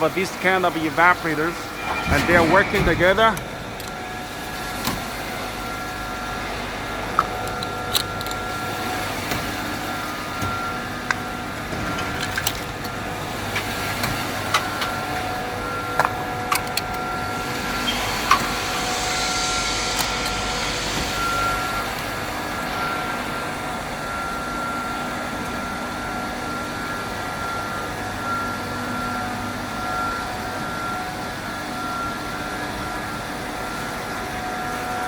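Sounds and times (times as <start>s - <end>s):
faint high whine: 0.0s - 9.0s, 17.0s - 32.5s
ice machine drone: 0.0s - 35.0s.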